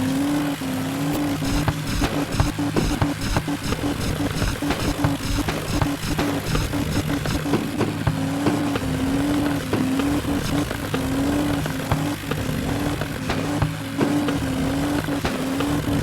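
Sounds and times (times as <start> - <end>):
tractor diesel engines under load: 0.0 - 16.0.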